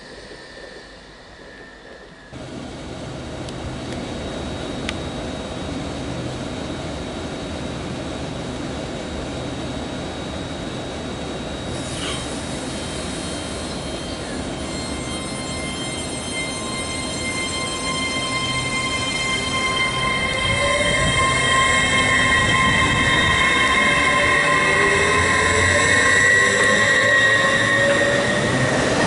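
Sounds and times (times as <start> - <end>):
falling squeal: 0.0 - 2.4, 11.5 - 29.0
train wheels rumbling: 11.7 - 29.0
high squealing tones: 12.0 - 29.0.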